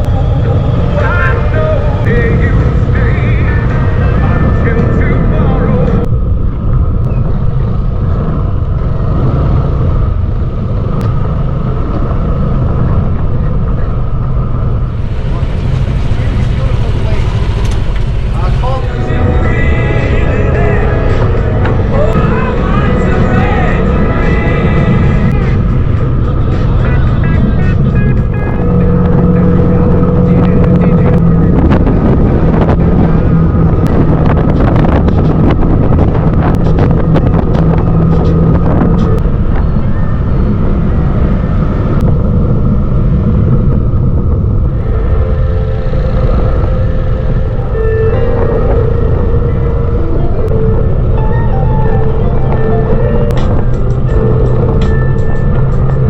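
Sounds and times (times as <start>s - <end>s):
motorcycle engine rumble: 0.0s - 56.0s
wind noise: 0.0s - 56.0s.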